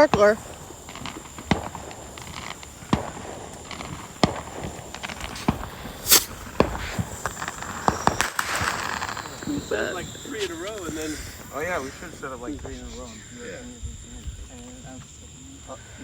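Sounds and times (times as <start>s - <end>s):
cricket trill: 0.0s - 16.0s
firecrackers popping: 0.0s - 16.0s.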